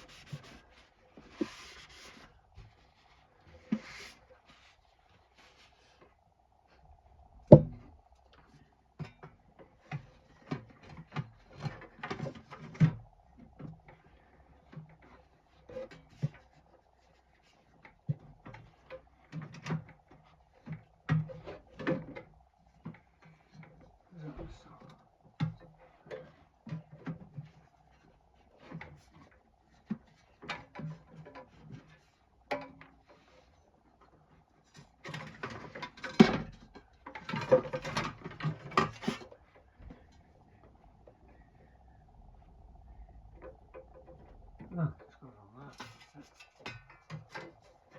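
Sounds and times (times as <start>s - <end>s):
parts clicking and clunking: 7.5s - 45.1s
light clicks and scrapes of tools: 45.7s - 47.9s.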